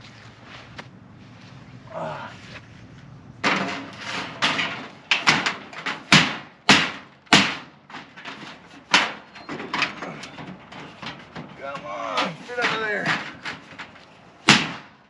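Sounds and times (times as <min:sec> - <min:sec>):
building material knocks and bangs: 0:03.4 - 0:15.0.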